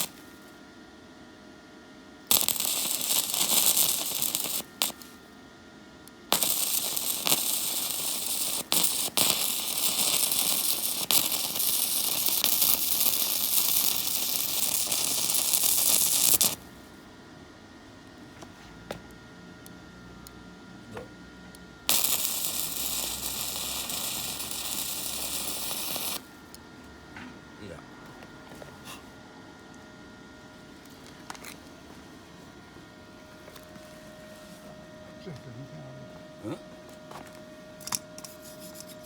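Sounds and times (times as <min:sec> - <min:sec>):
welder arc crackling: 0:00.0 - 0:00.4, 0:02.2 - 0:05.2, 0:06.1 - 0:16.8, 0:21.8 - 0:26.6.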